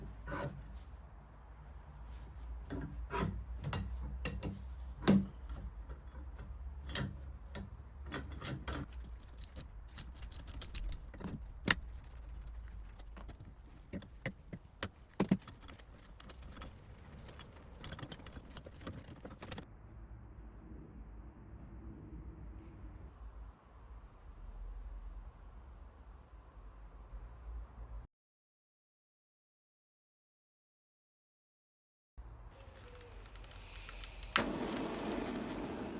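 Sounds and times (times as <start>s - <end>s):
metallic clinks on a vice: 8.3s - 19.6s.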